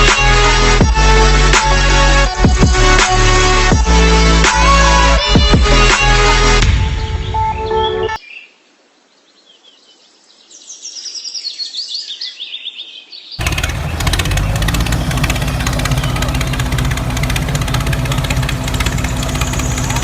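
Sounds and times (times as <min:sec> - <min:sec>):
bird chirping: 0:07.0 - 0:20.0
motor running with fast rattle: 0:13.4 - 0:20.0.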